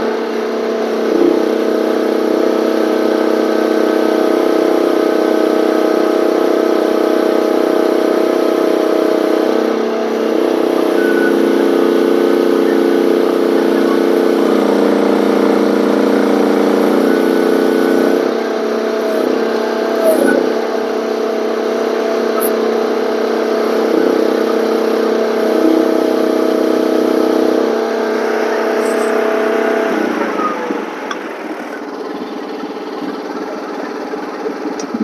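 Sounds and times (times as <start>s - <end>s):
mini excavator engine running: 0.0s - 35.0s.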